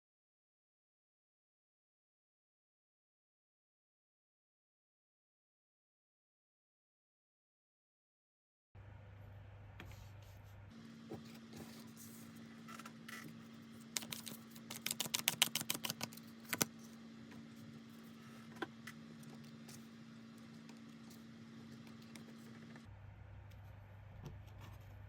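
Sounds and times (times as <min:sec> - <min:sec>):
steady low hum: 0:08.8 - 0:25.0.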